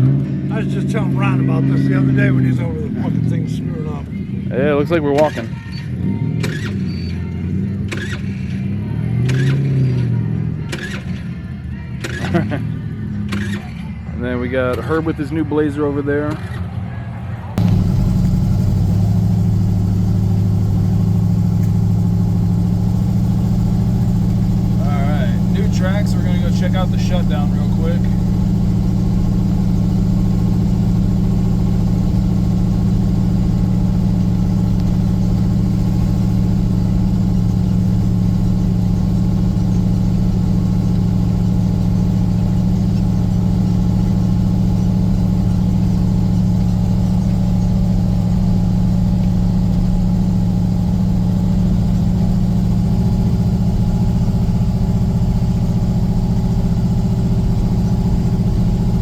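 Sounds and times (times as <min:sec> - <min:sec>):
vehicle engine humming: 0:16.6 - 0:59.0.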